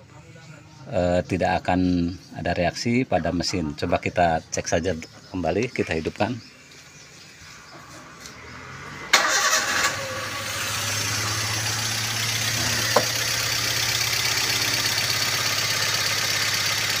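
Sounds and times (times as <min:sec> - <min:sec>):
car engine starting and idling roughly: 0:09.1 - 0:17.0.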